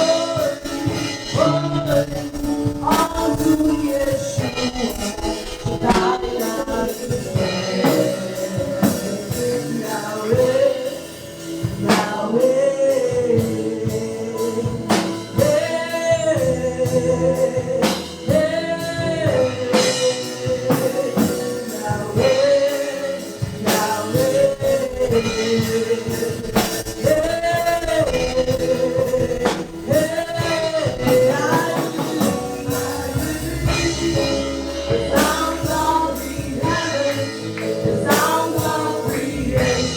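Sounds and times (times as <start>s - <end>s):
band playing: 0.0s - 39.9s
gospel singing: 0.0s - 39.9s
steady drum beat: 0.0s - 39.9s.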